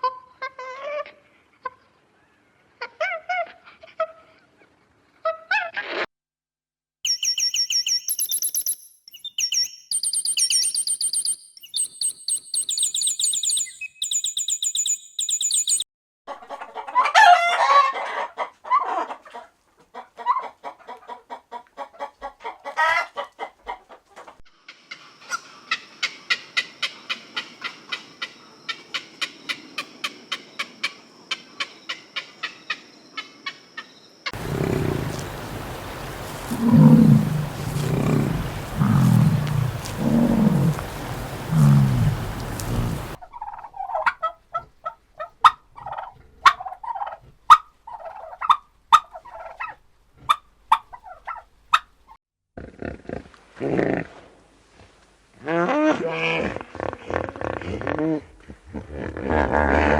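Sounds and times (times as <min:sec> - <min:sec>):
chickens clucking: 0:16.4 - 0:29.0, 0:34.4 - 0:51.4.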